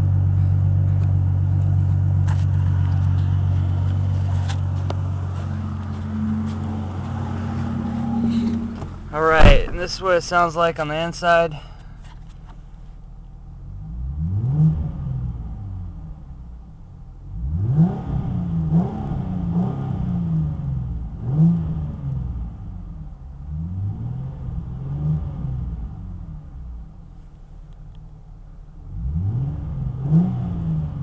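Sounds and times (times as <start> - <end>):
car engine revving: 0.9 - 10.4, 13.6 - 16.5, 17.2 - 26.5, 28.8 - 31.0.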